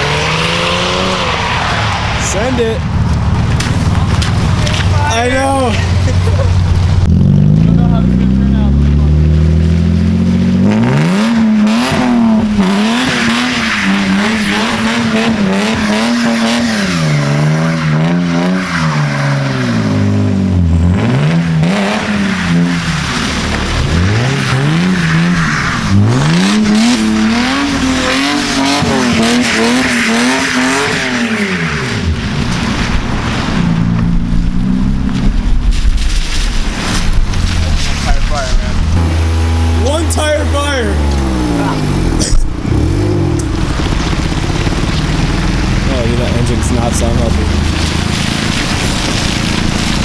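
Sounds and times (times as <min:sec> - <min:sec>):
tire squeal: 0:00.0 - 0:05.6, 0:10.8 - 0:20.2, 0:20.8 - 0:34.0
car engine revving hard: 0:00.0 - 0:35.2, 0:36.8 - 0:50.0.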